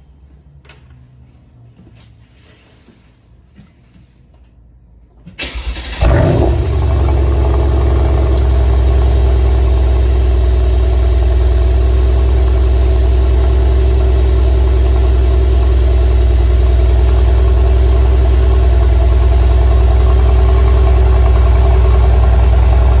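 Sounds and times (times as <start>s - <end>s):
car engine starting and idling: 5.3s - 23.0s.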